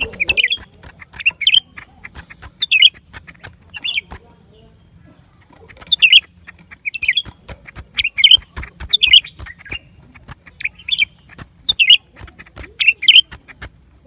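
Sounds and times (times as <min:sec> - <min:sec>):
bird chattering calls: 0:00.0 - 0:13.7
sharp clicks: 0:05.4 - 0:13.8.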